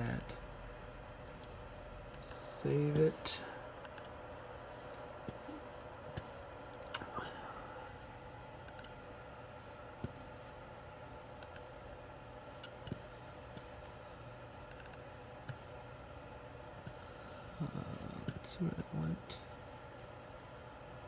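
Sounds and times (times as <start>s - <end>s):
steady low hum: 0.0s - 21.0s
computer mouse clicks: 3.8s - 4.1s, 4.9s - 7.1s, 8.6s - 9.0s, 11.4s - 11.7s, 14.6s - 15.6s.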